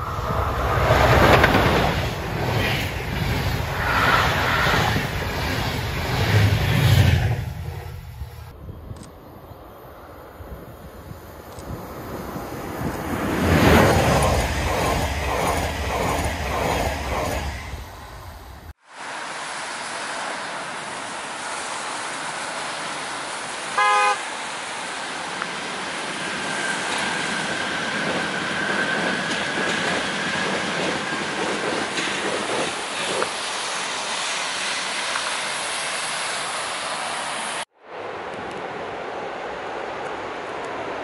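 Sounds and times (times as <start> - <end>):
train running past: 0.0 - 41.0
short train horn toot: 23.8 - 24.3.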